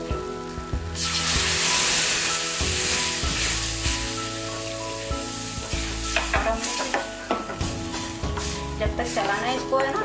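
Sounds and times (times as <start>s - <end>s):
milk sizzling in a hot pan: 0.0s - 10.0s.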